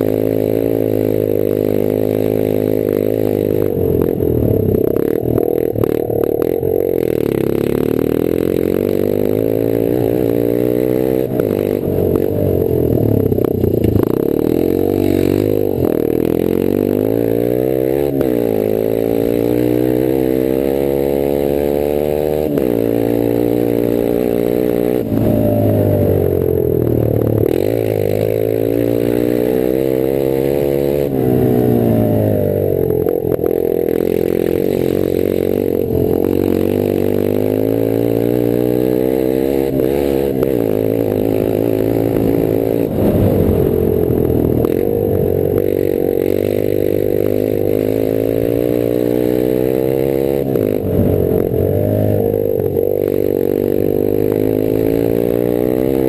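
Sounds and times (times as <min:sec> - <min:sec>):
motorcycle engine revving through gears: 0:00.0 - 0:56.0.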